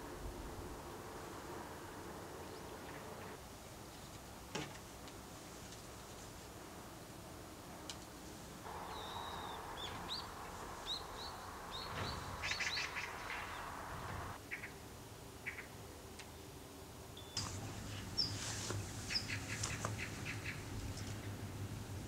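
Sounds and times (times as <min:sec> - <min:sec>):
faint steady hiss: 0:00.0 - 0:22.0
scratchy bird calls: 0:08.7 - 0:14.7, 0:17.4 - 0:21.2
small birds chirping: 0:08.7 - 0:14.8, 0:15.4 - 0:16.6, 0:17.2 - 0:21.4.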